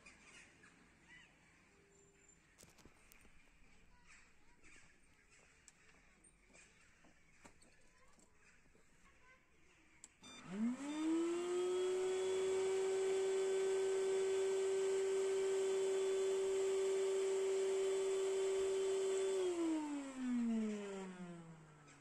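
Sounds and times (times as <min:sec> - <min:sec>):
vacuum cleaner motor whine: 0:10.1 - 0:22.0.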